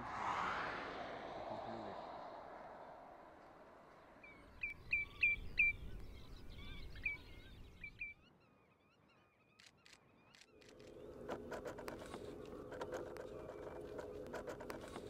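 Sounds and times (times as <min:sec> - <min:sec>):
birds whistling calls: 0:04.2 - 0:08.3.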